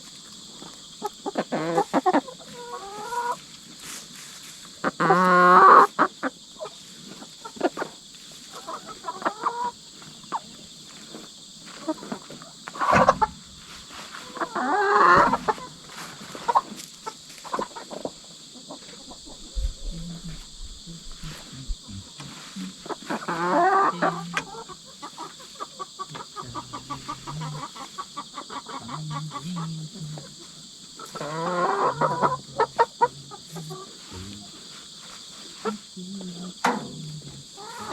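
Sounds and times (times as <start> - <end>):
crickets chirping: 0.0 - 37.9
hens clucking: 1.0 - 3.5, 4.8 - 10.6, 11.8 - 37.9.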